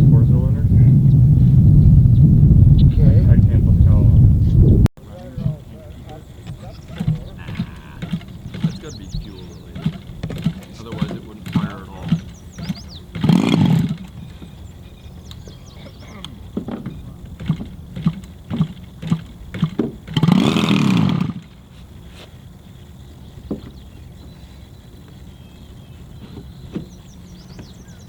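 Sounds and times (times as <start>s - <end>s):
knocks of engine turning over: 6.4s - 14.6s, 16.4s - 21.6s.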